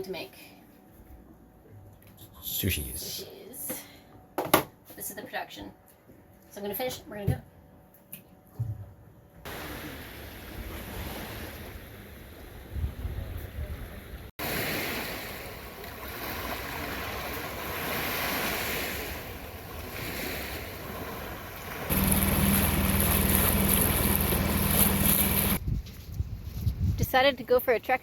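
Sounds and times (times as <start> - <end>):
waves washing in: 9.5 - 12.6, 14.4 - 25.6
wind on microphone: 12.4 - 14.3, 23.2 - 27.2
low hum: 21.7 - 25.6.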